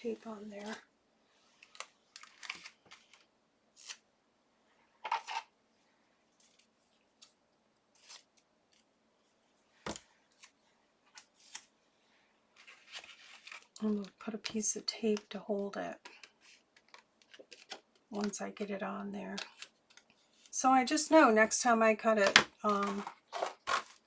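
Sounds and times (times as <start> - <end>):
adhesive tape rustling and clicking: 1.6 - 4.0, 12.6 - 14.2, 16.0 - 18.4, 19.3 - 20.6, 22.3 - 24.0.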